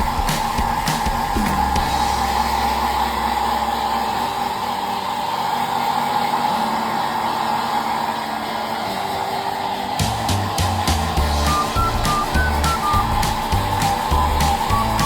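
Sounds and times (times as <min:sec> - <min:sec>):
hair dryer running: 0:09.6 - 0:15.0.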